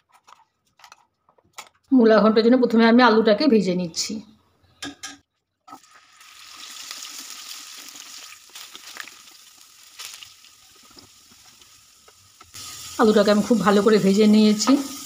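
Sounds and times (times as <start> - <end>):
potatoes sizzling in hot oil: 5.8 - 15.0.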